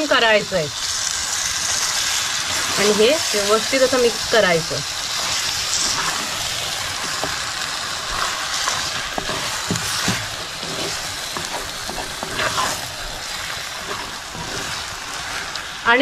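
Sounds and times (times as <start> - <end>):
chicken sizzling in oil: 0.0 - 16.0
spatula knocking and scraping pot: 8.1 - 12.8.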